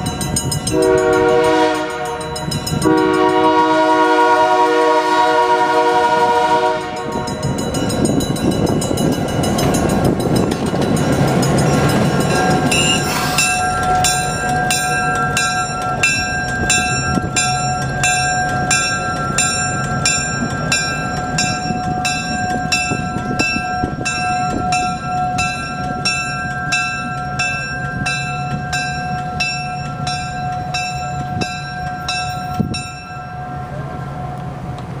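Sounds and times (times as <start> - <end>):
train running past: 0.0 - 35.0
locomotive air horn chord: 0.7 - 7.5
steady tones: 5.4 - 35.0.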